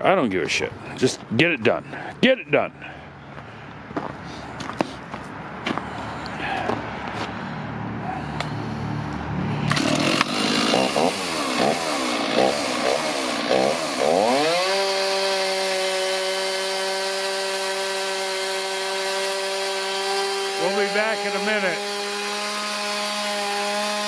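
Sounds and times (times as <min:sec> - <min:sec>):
chainsaw cutting log: 0:09.6 - 0:24.0.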